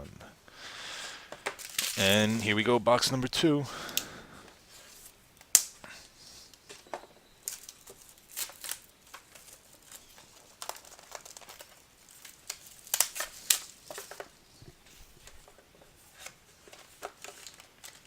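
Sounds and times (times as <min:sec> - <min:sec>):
plastic wrapping crinkling and tearing: 0:01.5 - 0:02.5, 0:07.4 - 0:18.0.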